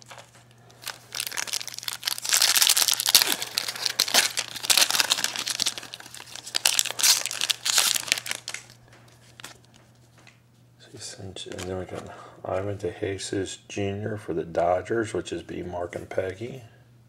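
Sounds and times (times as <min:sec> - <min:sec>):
foil wrapper crinkling: 0:00.0 - 0:09.8.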